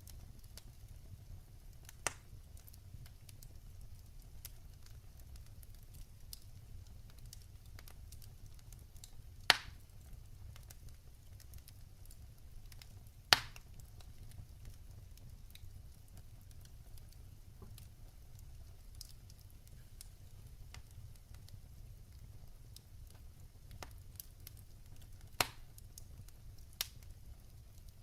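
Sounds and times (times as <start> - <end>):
wood fire crackling: 0.0 - 28.0
loud sharp fire pops: 9.5 - 9.8, 13.3 - 13.6, 25.3 - 25.8.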